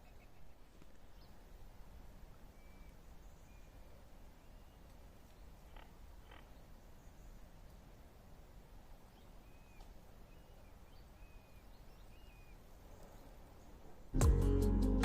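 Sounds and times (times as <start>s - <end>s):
faint short bird calls: 2.5s - 7.4s
music: 14.2s - 15.0s.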